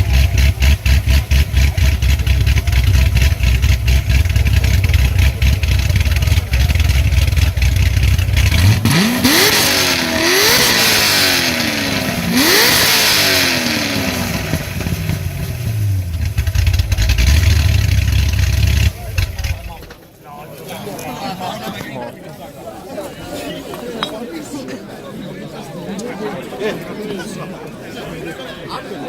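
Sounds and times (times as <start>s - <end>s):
car exhaust idling and revving: 0.0s - 19.9s.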